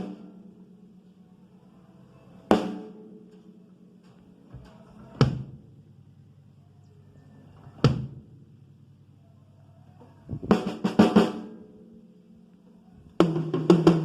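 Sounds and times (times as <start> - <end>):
drums struck and ringing: 2.5 - 3.1.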